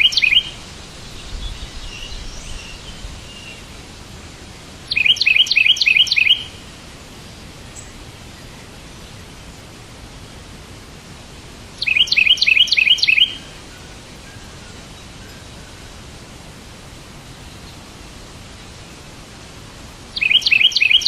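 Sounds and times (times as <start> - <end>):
bird chirping: 0.0 - 3.7, 4.4 - 6.6, 11.8 - 15.9, 20.2 - 21.0
background hiss: 0.0 - 21.0.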